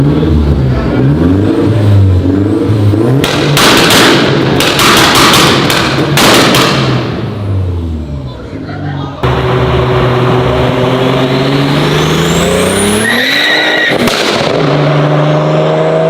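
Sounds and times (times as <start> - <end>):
car engine revving: 0.0 - 8.4, 9.2 - 16.0
loud sharp exhaust bangs: 3.1 - 7.8, 13.8 - 15.0.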